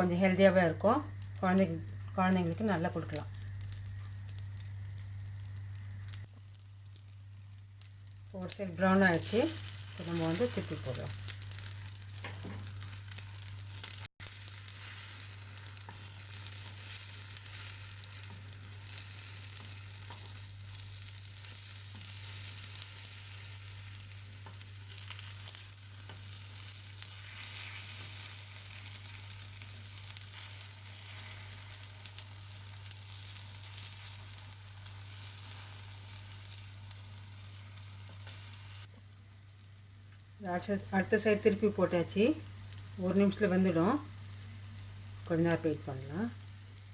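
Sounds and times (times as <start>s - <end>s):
low hum: 0.0s - 14.6s
egg sizzling in hot oil: 0.0s - 46.9s.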